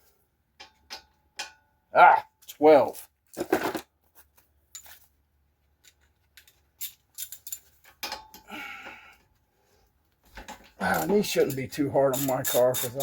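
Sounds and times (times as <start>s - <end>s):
metallic clicks of tools: 10.5s - 13.0s
ratchet wrench ratcheting: 11.0s - 13.0s.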